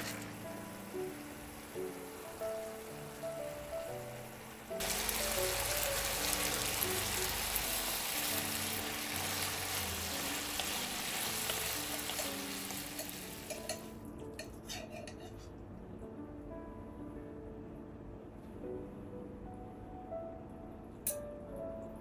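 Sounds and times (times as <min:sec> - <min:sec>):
food sizzling in a frying pan: 0:00.0 - 0:14.0
soft background music: 0:00.0 - 0:22.0.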